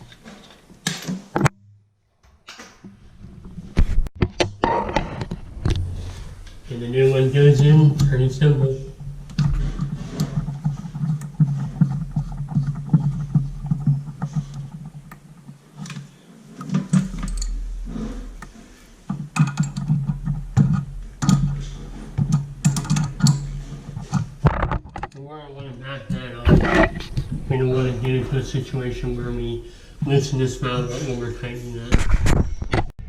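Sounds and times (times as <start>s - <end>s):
low hum: 5.0s - 15.2s, 25.9s - 31.3s.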